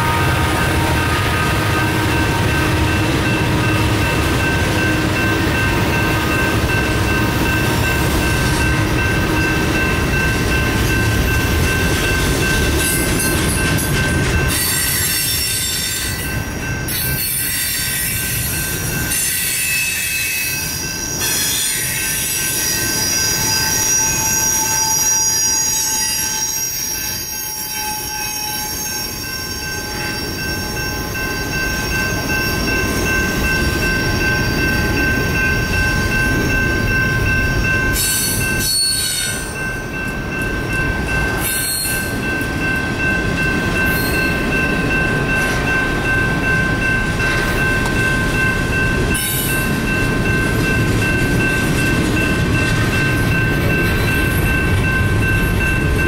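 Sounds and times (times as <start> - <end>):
train wheels rumbling on rail: 0.0 - 56.0
high-pitched wheel squeal: 19.1 - 32.0.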